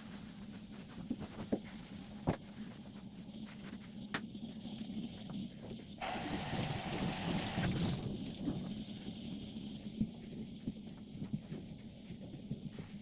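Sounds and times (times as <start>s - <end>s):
water running: 6.0s - 9.3s.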